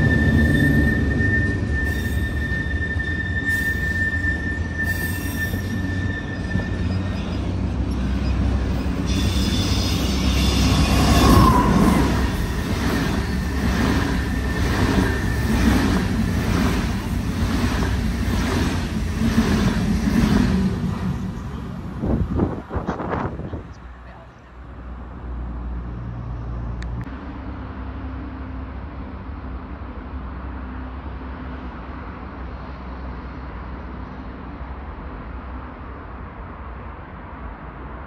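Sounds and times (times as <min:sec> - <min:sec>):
high wheel squeal: 0:00.0 - 0:16.2
train passing with loud rush: 0:00.0 - 0:38.0.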